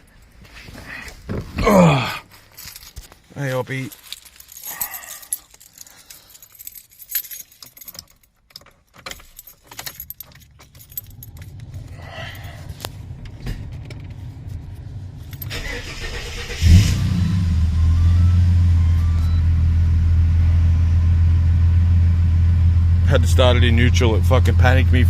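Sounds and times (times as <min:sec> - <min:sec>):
car keys jangling: 0:02.3 - 0:16.9.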